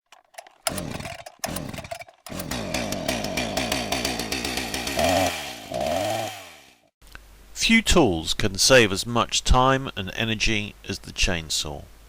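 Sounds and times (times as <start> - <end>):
chainsaw engine revving: 0.1 - 6.9.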